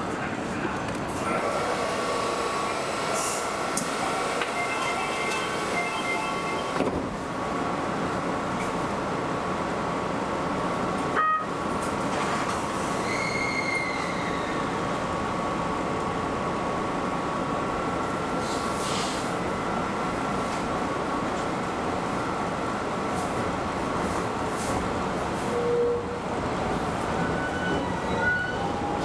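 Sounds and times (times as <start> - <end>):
train rolling noise: 0.0 - 29.0
brief tone: 4.5 - 6.8, 27.3 - 28.7
short squeal falling in pitch: 13.0 - 14.6.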